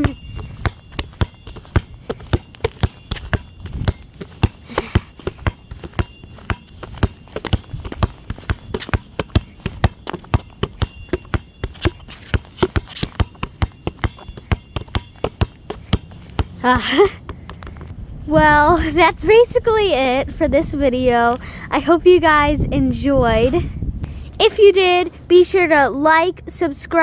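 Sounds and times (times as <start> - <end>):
wind rumble on microphone: 0.0 - 4.2, 17.4 - 24.4
basketball dribbling: 0.0 - 17.9.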